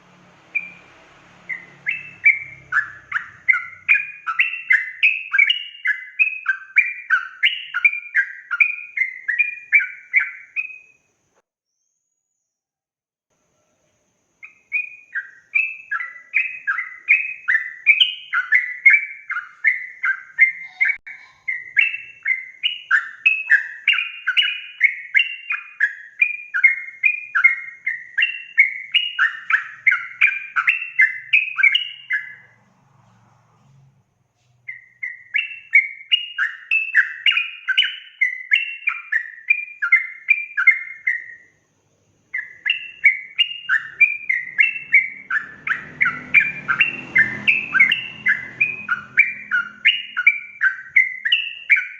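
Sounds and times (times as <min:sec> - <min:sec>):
bulbul chattering song: 0:00.0 - 0:11.1, 0:14.4 - 0:32.6, 0:34.6 - 0:51.9.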